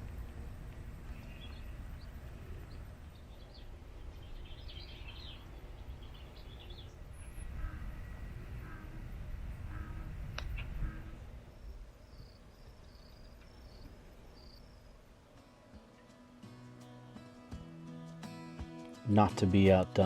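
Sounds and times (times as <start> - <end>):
steady low rumble: 0.0 - 15.2
birds chirping and calling: 1.0 - 15.0.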